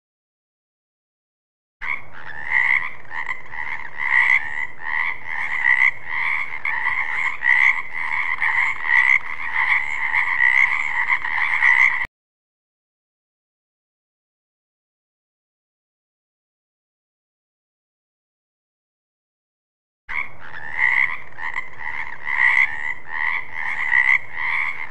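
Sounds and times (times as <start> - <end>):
frogs croaking: 1.8 - 12.1, 20.1 - 24.9.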